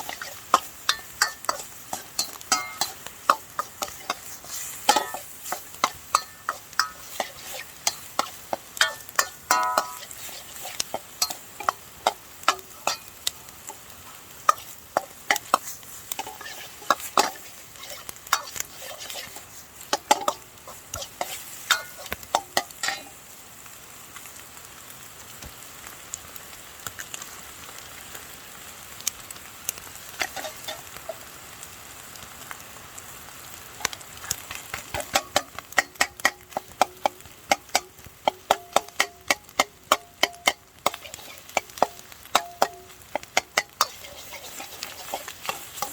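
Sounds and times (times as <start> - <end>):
metal utensil clanking on wok: 0.0 - 23.2, 30.1 - 31.2, 33.8 - 45.9
rice sizzling in a wok: 0.0 - 45.9.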